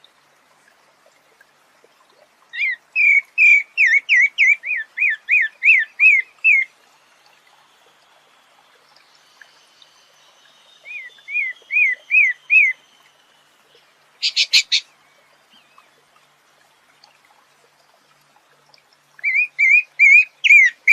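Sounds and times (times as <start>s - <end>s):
bird whistled song: 2.6s - 6.7s, 9.4s - 12.8s, 14.2s - 14.9s, 19.2s - 20.9s.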